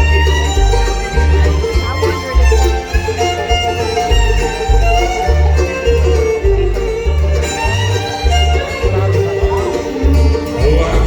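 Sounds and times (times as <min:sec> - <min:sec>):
bluegrass band playing: 0:00.0 - 0:11.0
fiddle melody: 0:00.0 - 0:11.0.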